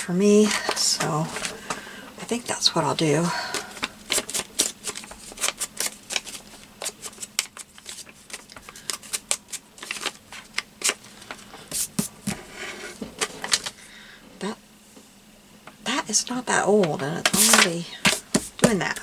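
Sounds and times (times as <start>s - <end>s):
paper rustling: 3.4s - 13.8s, 16.8s - 19.0s
paper tapping on table: 11.7s - 12.5s, 16.8s - 19.0s.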